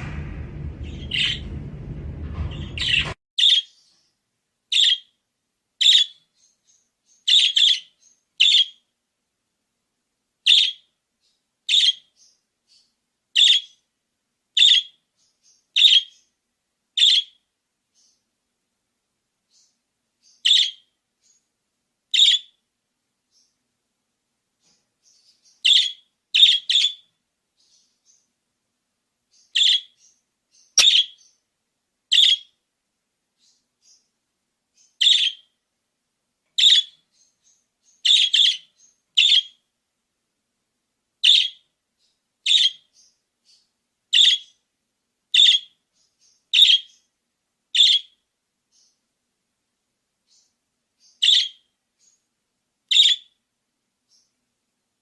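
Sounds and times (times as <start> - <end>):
budgerigar chirping: 4.7 - 5.1, 5.8 - 6.2, 7.3 - 8.8, 10.5 - 10.8, 11.7 - 12.1, 14.6 - 15.0, 15.8 - 16.2, 17.0 - 17.4, 30.8 - 31.3, 35.0 - 35.5, 36.6 - 37.0, 38.0 - 39.6, 41.2 - 41.6, 42.4 - 43.1, 44.1 - 44.6, 45.4 - 45.8, 46.6 - 47.0, 47.8 - 48.2, 51.1 - 51.7, 52.9 - 53.3.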